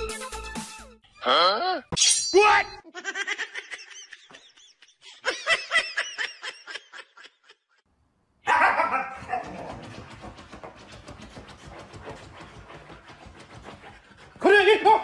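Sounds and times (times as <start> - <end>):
dog rapid breathing: 9.2 - 15.0.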